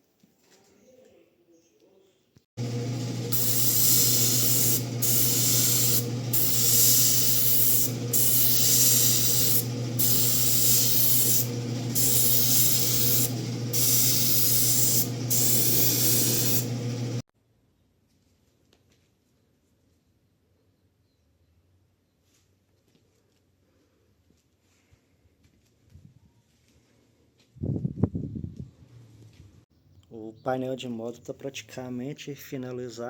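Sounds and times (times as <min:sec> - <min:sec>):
paint spray gun hissing: 0:02.6 - 0:17.2
spray gun motor humming: 0:02.6 - 0:17.2.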